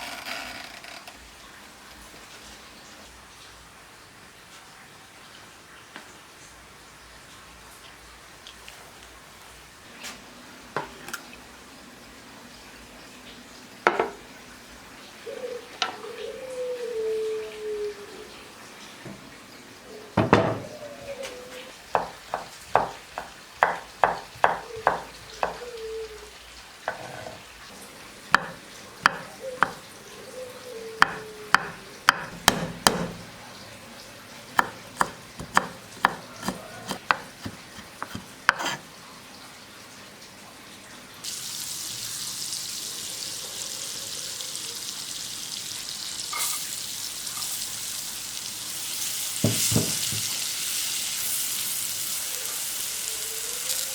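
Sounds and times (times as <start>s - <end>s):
food sizzling in a pan: 20.2s - 33.2s, 34.4s - 39.0s, 41.2s - 53.9s.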